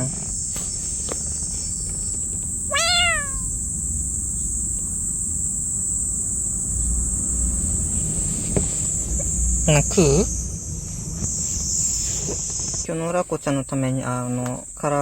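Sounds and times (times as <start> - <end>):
cat meow: 2.7 - 3.6.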